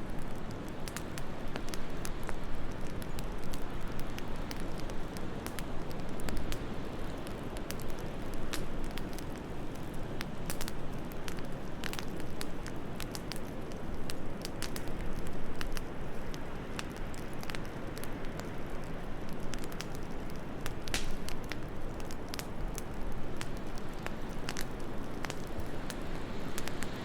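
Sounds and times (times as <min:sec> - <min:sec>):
low rush of wind: 0:00.0 - 0:27.0
wood fire crackling and popping: 0:00.0 - 0:27.0.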